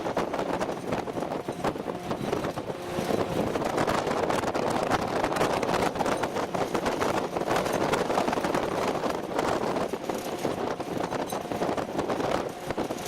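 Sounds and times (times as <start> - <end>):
vehicle engine and road rumble: 0.0 - 13.0
wind on microphone: 0.0 - 13.0.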